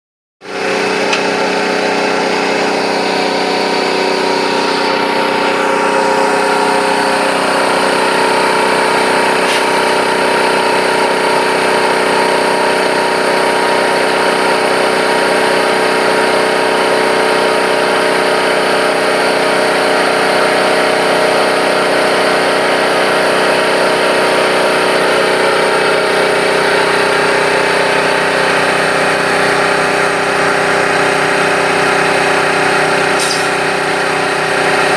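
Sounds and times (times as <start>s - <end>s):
piston compressor droning: 0.5s - 11.3s, 32.8s - 34.5s.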